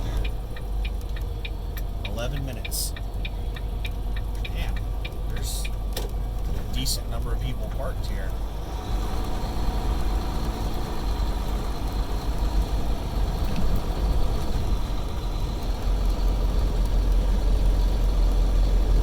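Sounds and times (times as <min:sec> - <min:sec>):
truck engine rumbling: 0:00.0 - 0:19.0.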